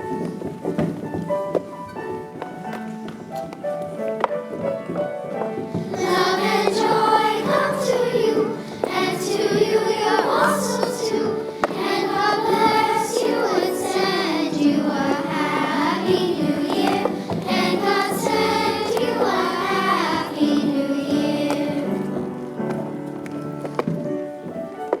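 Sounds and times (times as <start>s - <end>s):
musical accompaniment: 0.0s - 25.0s
children's choir singing: 4.6s - 23.9s.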